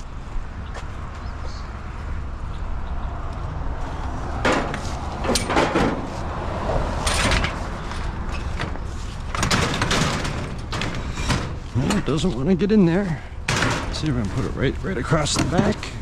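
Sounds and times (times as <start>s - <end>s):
scrap metal clattering and scraping: 4.4s - 16.0s.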